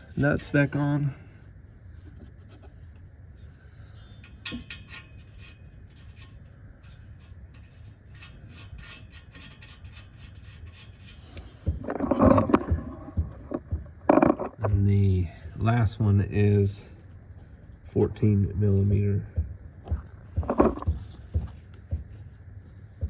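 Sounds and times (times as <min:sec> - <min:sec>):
metal nuts clicking and rubbing: 0:04.0 - 0:14.7, 0:20.4 - 0:21.0
metal scraping and clatter: 0:04.0 - 0:14.7.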